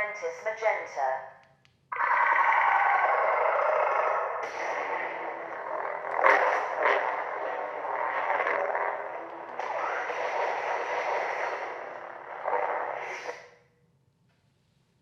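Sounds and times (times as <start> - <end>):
lightsaber blade hum: 2.0 - 13.5.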